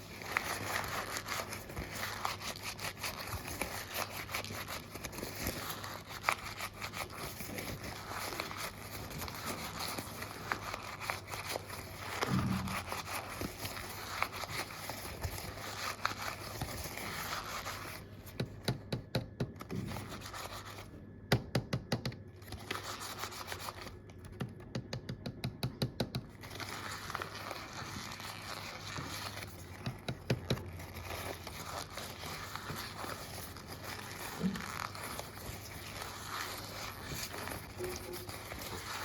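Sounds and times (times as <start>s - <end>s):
scratching and rubbing: 0.0s - 18.3s, 26.4s - 39.0s.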